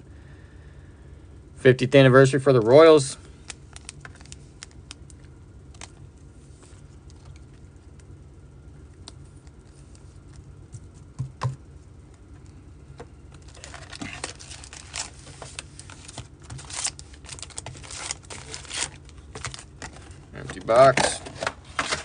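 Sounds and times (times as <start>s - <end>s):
steady low hum: 0.0s - 22.0s
wrappers crinkling and rustling: 3.4s - 7.5s, 13.4s - 22.0s.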